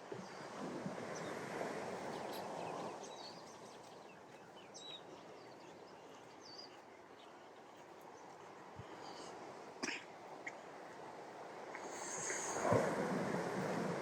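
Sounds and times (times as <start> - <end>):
ocean surf on beach: 0.0 - 4.0, 8.5 - 14.0.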